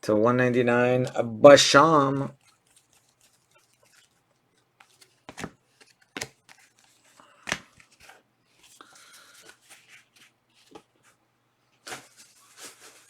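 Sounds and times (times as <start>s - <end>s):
cards snapping: 4.8s - 8.2s
card packaging rustling and sliding: 4.8s - 11.2s, 11.8s - 13.0s.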